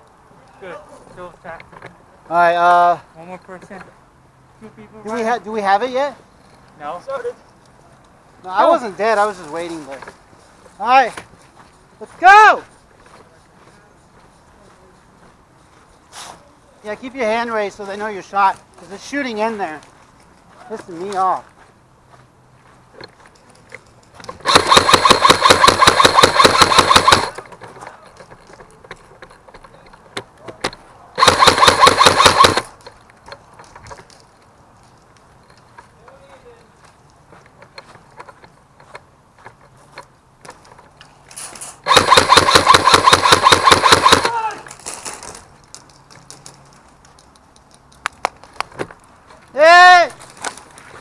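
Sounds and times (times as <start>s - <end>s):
motor and gearbox whirring: 24.3s - 27.6s
airsoft gun full-auto burst: 24.4s - 27.4s, 31.2s - 32.7s, 41.8s - 44.4s.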